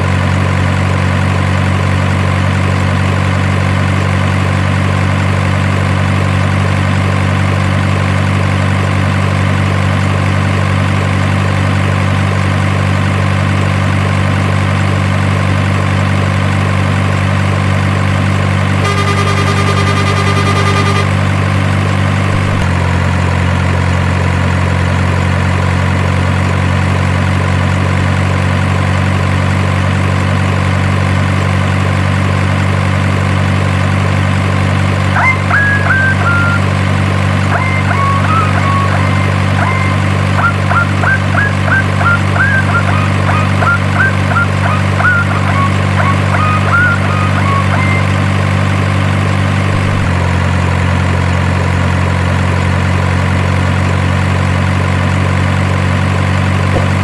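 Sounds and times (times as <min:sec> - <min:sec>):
truck engine idling: 0:00.0 - 0:57.0
high tone: 0:18.8 - 0:21.4, 0:35.1 - 0:50.2.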